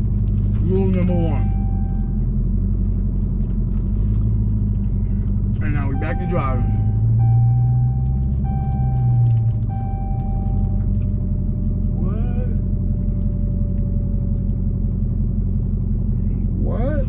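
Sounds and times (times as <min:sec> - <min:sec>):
car engine running: 0:00.0 - 0:17.0
electronic warning tone: 0:00.7 - 0:02.2, 0:05.6 - 0:11.0.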